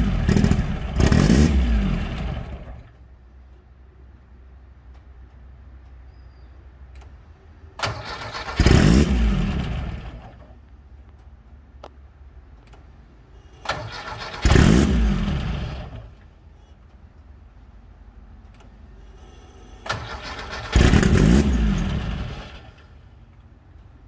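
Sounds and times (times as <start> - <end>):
car engine firing and revving: 0.0 - 2.9, 7.9 - 10.4, 13.7 - 16.2, 19.9 - 22.8
starter motor cranking: 7.8 - 9.9, 13.6 - 16.0, 19.8 - 22.8.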